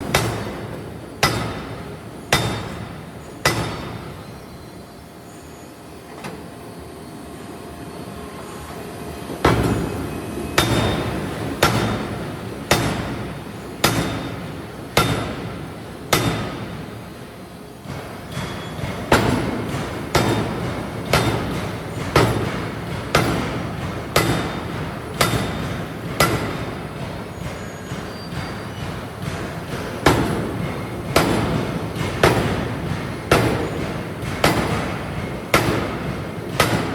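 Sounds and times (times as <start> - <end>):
forging hammer striking steel: 0.0 - 4.3, 10.6 - 17.0, 17.8 - 36.9.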